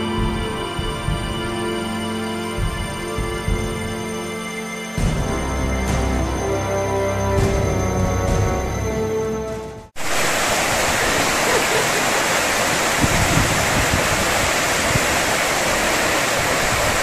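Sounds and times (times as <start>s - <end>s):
background music: 0.0s - 10.0s
flowing water rushing: 0.0s - 17.0s.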